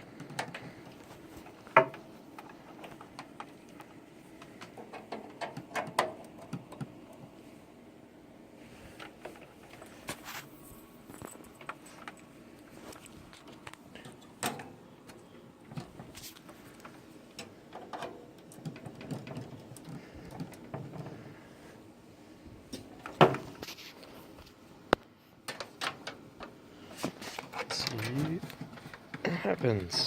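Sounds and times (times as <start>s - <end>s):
computer parts clicking and knocking: 0.0s - 7.3s, 13.5s - 16.1s, 16.7s - 21.2s, 25.5s - 26.6s.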